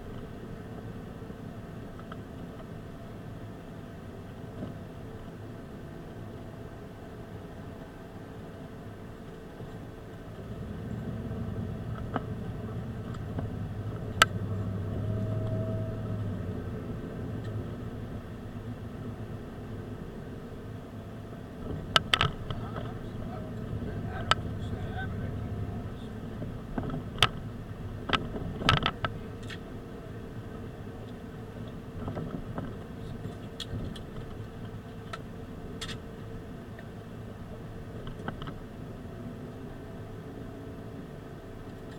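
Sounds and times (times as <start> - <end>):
car engine running: 0.0 - 41.9
light clicks and rattles: 21.6 - 24.8.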